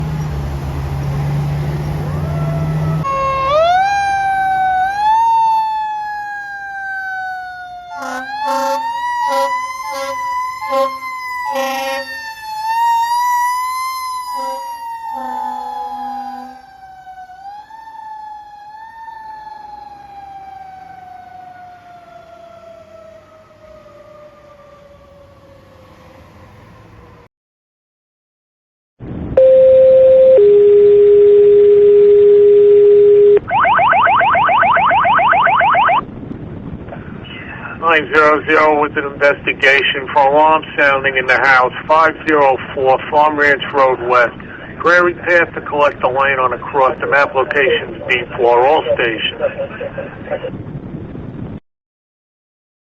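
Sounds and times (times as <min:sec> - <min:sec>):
fire engine siren wailing: 0:00.0 - 0:27.3, 0:29.4 - 0:50.7
air horn blasts: 0:07.9 - 0:12.2, 0:14.3 - 0:16.7.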